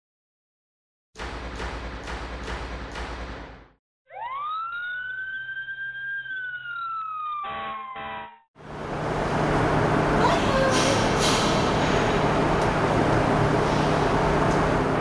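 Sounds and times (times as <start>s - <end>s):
fire engine siren wailing: 4.1s - 8.5s
horn blasts: 7.5s - 8.4s.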